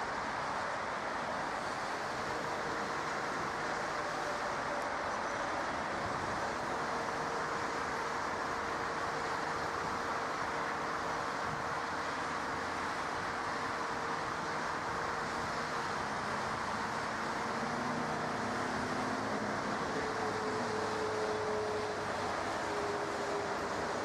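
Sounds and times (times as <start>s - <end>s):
faint engine whine: 0.0s - 24.0s
jet engines rushing: 0.0s - 24.0s.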